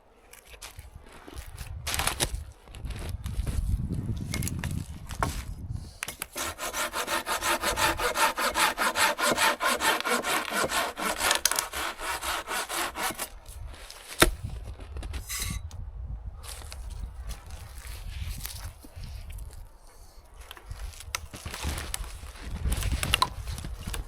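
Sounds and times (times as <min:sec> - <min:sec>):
hand saw cutting wood: 0:06.3 - 0:13.4.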